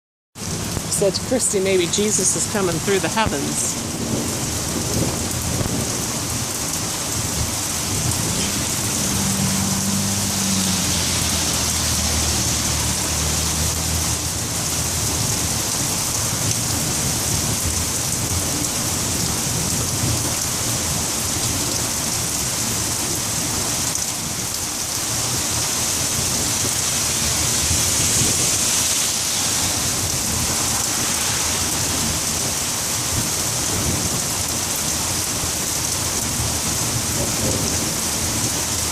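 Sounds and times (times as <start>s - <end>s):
heavy rain falling: 0.4s - 38.9s
thunder rumbling: 3.2s - 21.7s, 25.2s - 34.6s.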